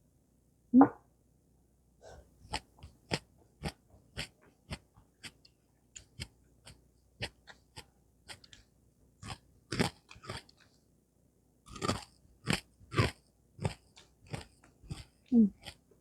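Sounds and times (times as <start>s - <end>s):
crunchy chewing: 2.5s - 10.8s, 11.6s - 15.9s.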